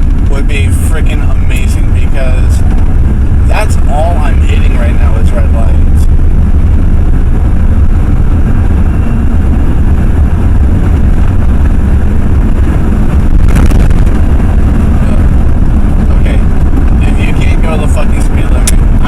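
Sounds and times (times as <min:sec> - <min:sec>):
pickup truck engine and road noise: 0:00.0 - 0:19.0.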